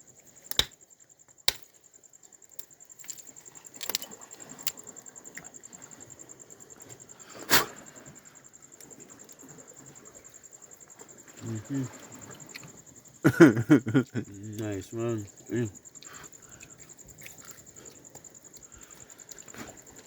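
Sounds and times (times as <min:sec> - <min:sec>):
crickets trilling: 0:00.0 - 0:20.0
sharp clicks or knocks: 0:00.5 - 0:00.8.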